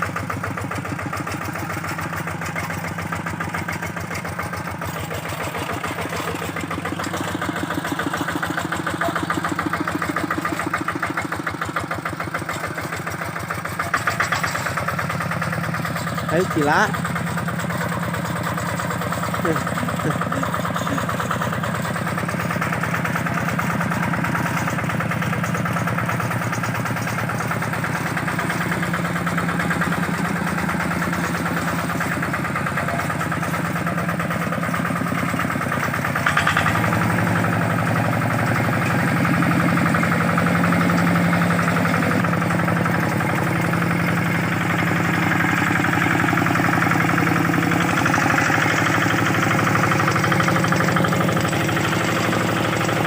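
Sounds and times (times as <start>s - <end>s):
diesel engine running: 0.0s - 53.0s
engine jolt: 0.0s - 53.0s.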